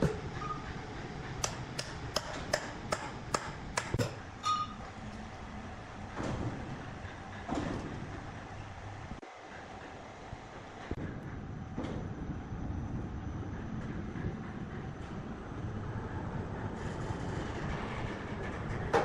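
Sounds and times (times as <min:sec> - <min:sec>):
steady background noise: 0:00.0 - 0:19.0
sharp knocks: 0:01.4 - 0:04.2.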